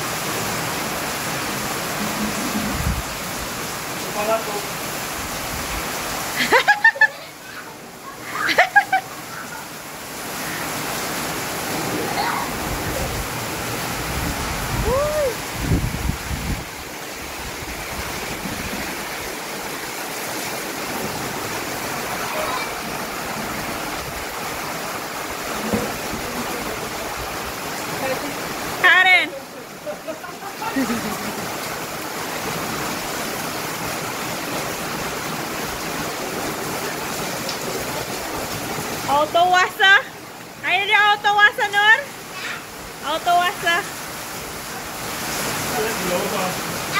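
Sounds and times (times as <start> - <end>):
heavy rain pouring: 0.0 - 46.9
rising and falling voice call: 14.8 - 15.5.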